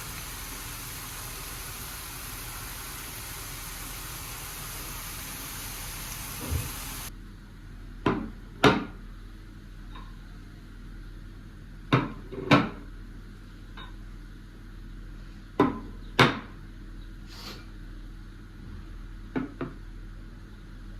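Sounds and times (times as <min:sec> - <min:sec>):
steady hiss: 0:00.0 - 0:07.1.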